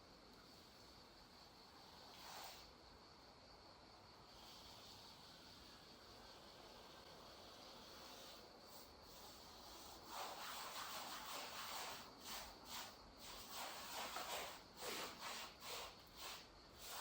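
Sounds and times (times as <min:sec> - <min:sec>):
paintbrush scrubbing concrete: 0:09.1 - 0:17.0.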